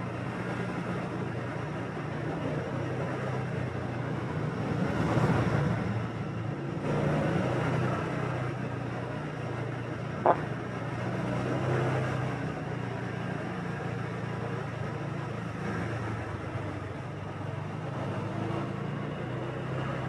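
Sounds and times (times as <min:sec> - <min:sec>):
road and wind noise: 0:00.0 - 0:20.0
motorbike engine hum: 0:08.0 - 0:11.4.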